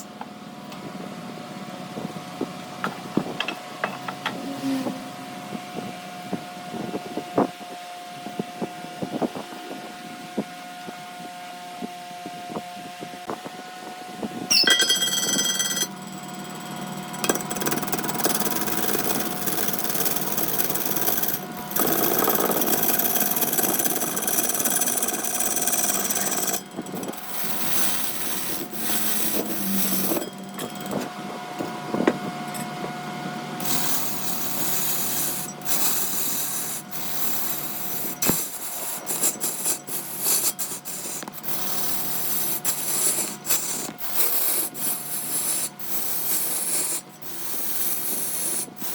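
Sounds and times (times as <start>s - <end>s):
ringing squeal: 14.5s - 16.2s, 25.8s - 31.7s
wood lathe humming: 16.3s - 48.9s
turning tool cutting wood: 16.8s - 32.6s, 33.6s - 48.9s.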